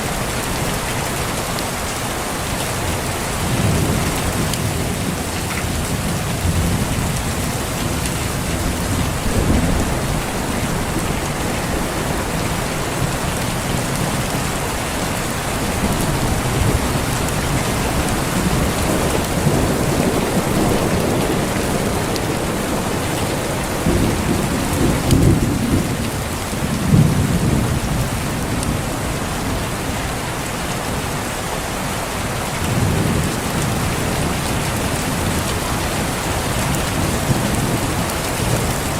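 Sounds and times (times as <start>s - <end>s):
steady rain falling: 0.0s - 38.9s
thunder rumbling: 3.4s - 29.9s.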